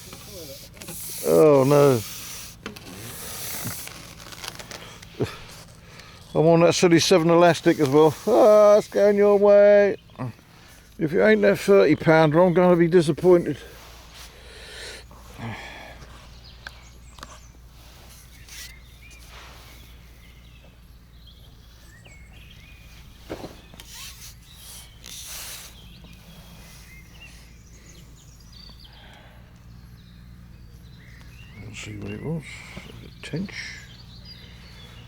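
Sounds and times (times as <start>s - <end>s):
bird chirps: 16.0s - 35.0s
rustles and knocks: 23.1s - 24.4s.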